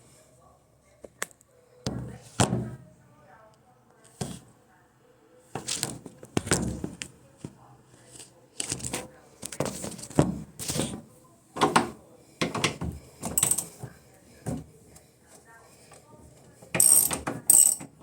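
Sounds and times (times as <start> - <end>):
hard objects knocking and clattering: 11.6 - 14.7, 16.6 - 18.0.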